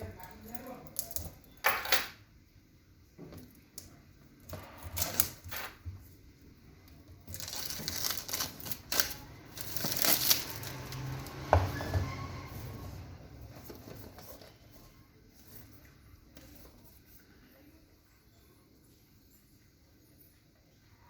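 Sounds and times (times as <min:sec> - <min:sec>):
packaging rustling and crinkling: 0:07.1 - 0:11.5.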